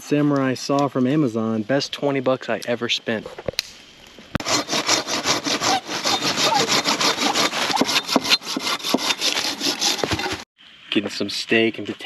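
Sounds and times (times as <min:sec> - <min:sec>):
hand saw cutting wood: 0:04.4 - 0:10.5.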